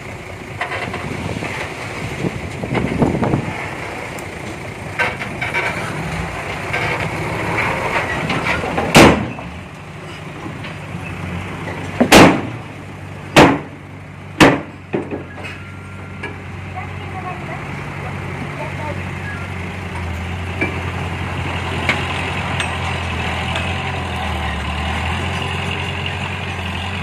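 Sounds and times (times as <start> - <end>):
diesel engine running: 0.0 - 27.0
loud metal clanks: 4.9 - 9.5, 11.6 - 13.8, 14.4 - 16.4.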